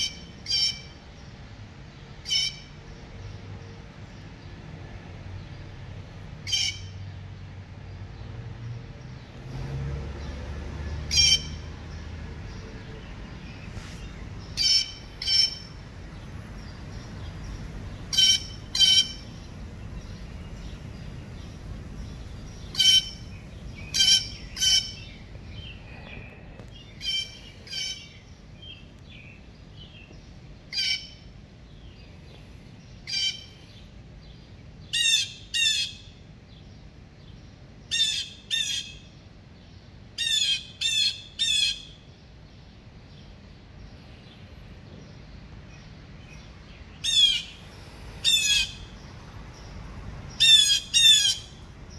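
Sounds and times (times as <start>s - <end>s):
bird squawking: 0.0s - 1.0s, 2.2s - 2.7s, 6.5s - 6.9s, 11.1s - 11.6s, 14.6s - 15.8s, 18.1s - 19.3s, 22.7s - 25.2s, 27.0s - 28.2s, 30.7s - 31.2s, 33.1s - 33.5s, 40.2s - 41.9s, 47.0s - 47.6s, 48.2s - 48.9s, 50.4s - 51.6s.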